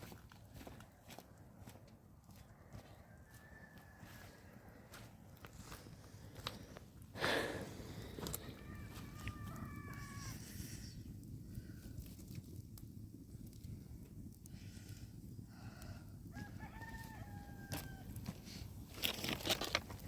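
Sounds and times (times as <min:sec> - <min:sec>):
rooster crowing: 0:02.7 - 0:05.0, 0:08.2 - 0:10.5, 0:15.6 - 0:18.2.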